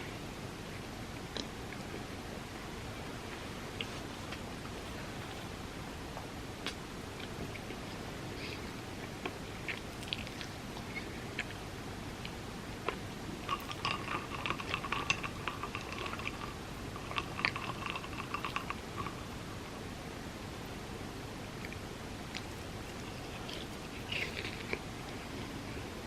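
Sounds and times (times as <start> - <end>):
person chewing: 21.7 - 25.8.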